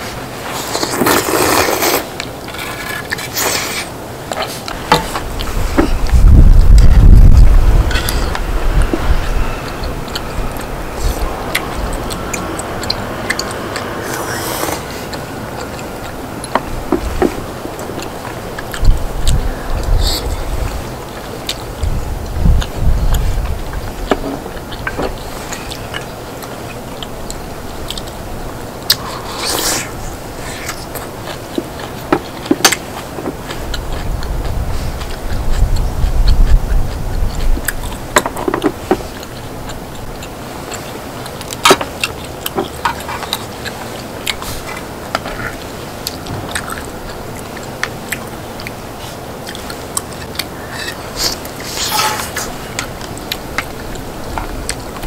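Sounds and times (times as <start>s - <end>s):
chewing and biting: 0.5s - 55.0s
low rumble: 5.1s - 20.9s.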